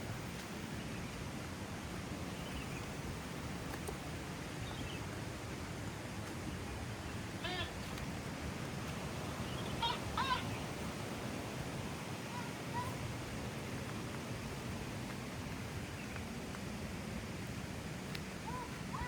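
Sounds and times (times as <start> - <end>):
short pitched calls: 9.6 - 10.6.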